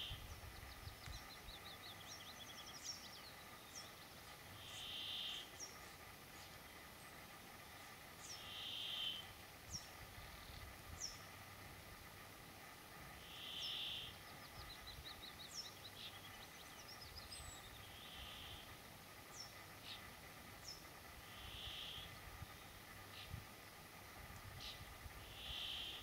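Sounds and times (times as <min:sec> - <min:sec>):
faint birdsong: 0:00.0 - 0:26.0.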